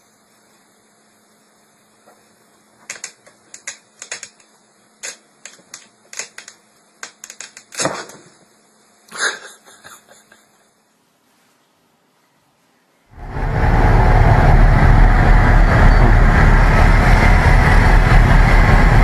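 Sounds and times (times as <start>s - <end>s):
faint steady hum: 0.0s - 19.0s
sharp irregular clicks and taps: 2.9s - 7.9s.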